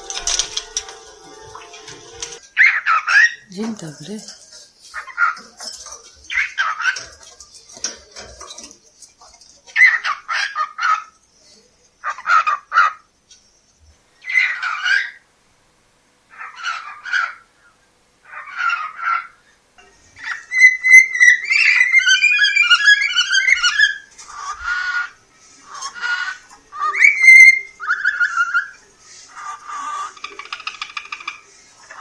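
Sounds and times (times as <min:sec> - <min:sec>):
cockatiel chattering and whistling: 0:20.2 - 0:25.1, 0:25.7 - 0:32.0.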